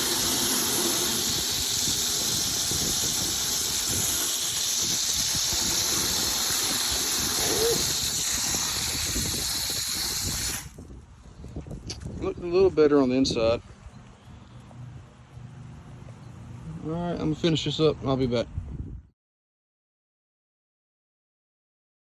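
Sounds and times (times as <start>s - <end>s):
water spraying hiss: 0.0s - 10.8s.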